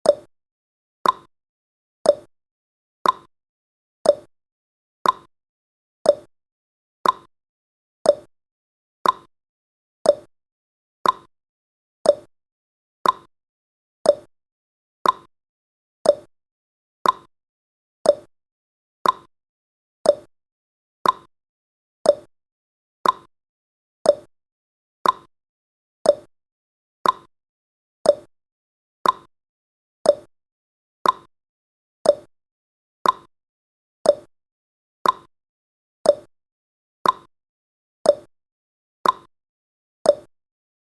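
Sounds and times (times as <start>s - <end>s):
clock ticking: 3.0s - 3.3s, 5.0s - 5.3s, 7.0s - 7.3s, 9.0s - 9.3s, 11.0s - 11.3s, 13.0s - 13.3s, 15.0s - 15.3s, 16.1s - 16.3s, 17.0s - 17.3s, 18.1s - 18.3s, 19.0s - 19.3s, 21.0s - 21.3s, 22.1s - 22.3s, 23.0s - 23.3s, 24.1s - 24.3s, 25.0s - 25.3s, 26.1s - 26.3s, 27.0s - 27.3s, 29.0s - 29.3s, 30.1s - 30.3s, 31.0s - 31.3s, 32.1s - 32.3s, 33.0s - 33.3s, 34.1s - 34.3s, 35.0s - 35.3s, 36.1s - 36.3s, 37.0s - 37.3s, 39.0s - 39.3s, 40.1s - 40.3s.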